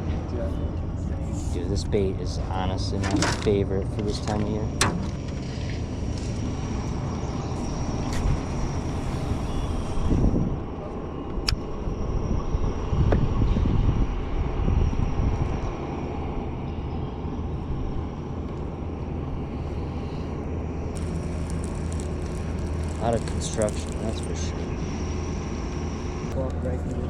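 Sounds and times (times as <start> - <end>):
small boat motor running: 20.8 - 26.3.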